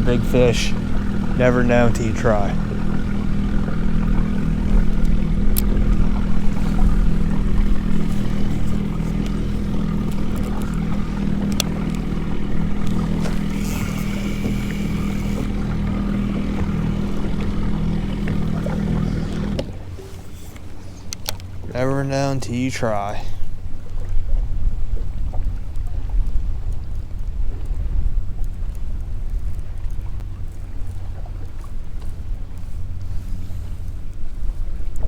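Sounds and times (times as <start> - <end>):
electric motor humming: 0.0 - 20.4.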